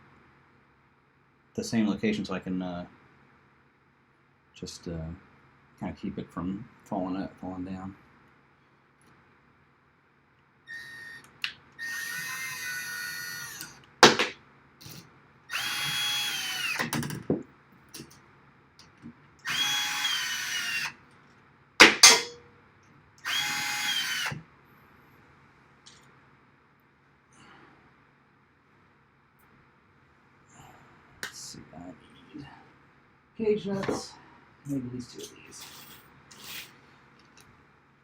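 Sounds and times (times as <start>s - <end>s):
power drill whining: 10.7s - 13.8s, 14.9s - 16.9s, 19.4s - 21.0s, 23.2s - 24.4s
sharp knocks: 21.8s - 22.4s.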